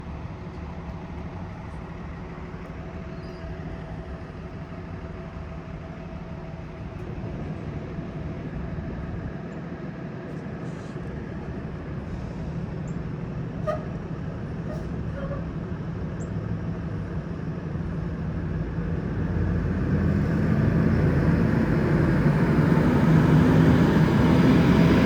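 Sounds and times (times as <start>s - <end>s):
bus engine running: 0.0s - 25.0s
engine cooling fan whirring: 15.2s - 25.0s.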